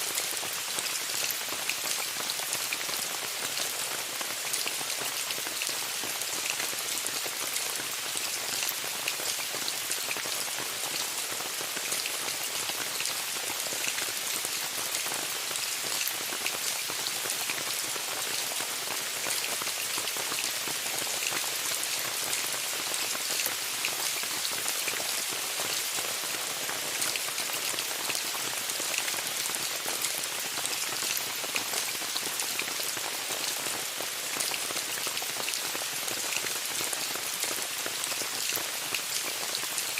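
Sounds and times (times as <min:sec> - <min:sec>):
rain falling on a tent: 0:00.0 - 0:39.9.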